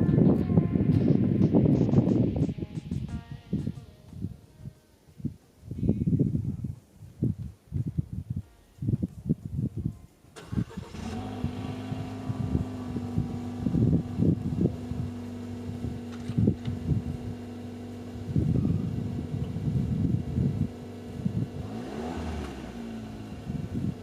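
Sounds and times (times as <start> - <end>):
irregular low thumps: 0.0 - 4.7, 11.7 - 17.4
car engine cold start and idle: 10.4 - 24.0.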